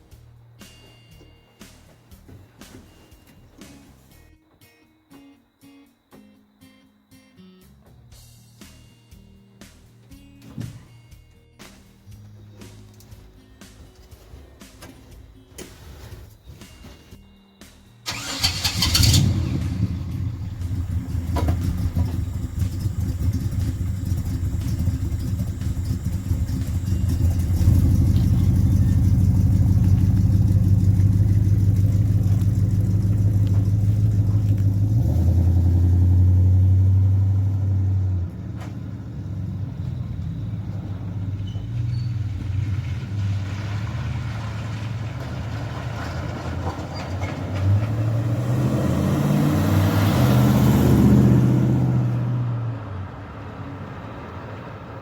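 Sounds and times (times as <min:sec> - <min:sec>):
truck engine starting and running: 0:18.0 - 0:55.0.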